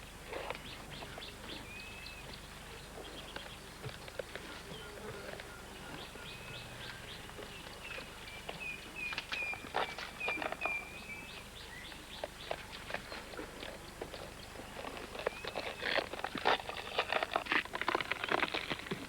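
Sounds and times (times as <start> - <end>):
birds chirping: 0.6 - 13.3
faint clicks and rustles: 12.2 - 19.0.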